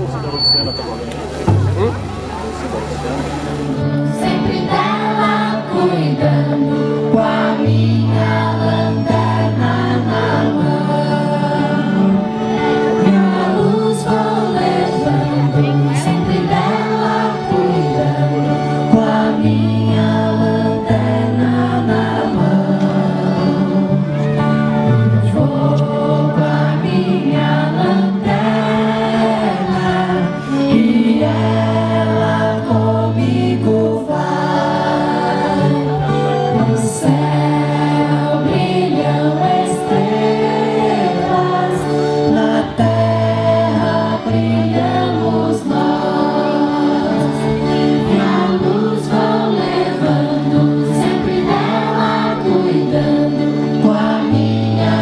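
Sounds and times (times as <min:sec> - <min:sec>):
low bass line: 0:00.0 - 0:04.5
group of voices singing: 0:01.2 - 0:55.0.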